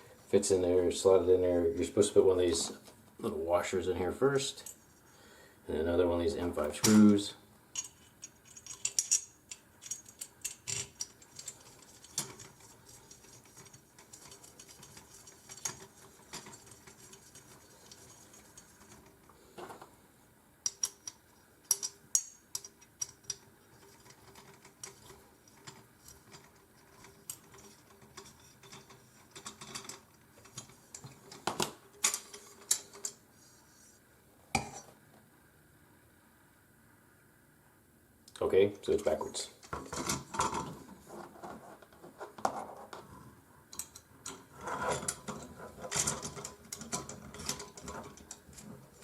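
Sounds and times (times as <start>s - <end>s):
small metal hardware clinking: 7.8s - 17.2s, 20.6s - 31.1s.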